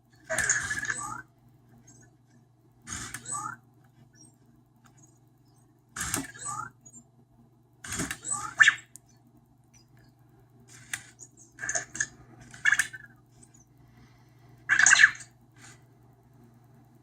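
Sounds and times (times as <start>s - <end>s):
steady low hum: 0.0s - 17.0s
robot whirring: 0.2s - 1.2s, 2.8s - 3.6s, 6.0s - 6.7s, 7.8s - 8.8s
robot electronic chirps: 8.2s - 8.9s.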